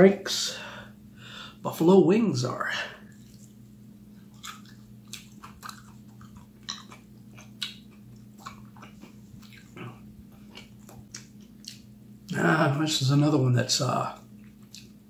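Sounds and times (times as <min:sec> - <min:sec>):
person chewing wetly: 0:03.0 - 0:12.4, 0:14.1 - 0:15.0.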